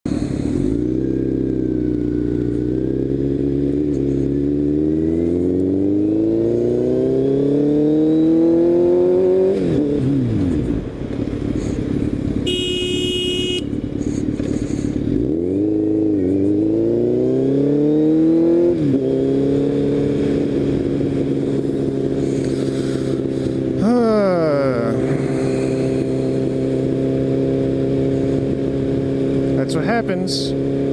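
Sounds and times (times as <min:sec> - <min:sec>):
motorcycle engine revving: 0:00.1 - 0:30.9
motorcycle horn honking: 0:12.4 - 0:14.0.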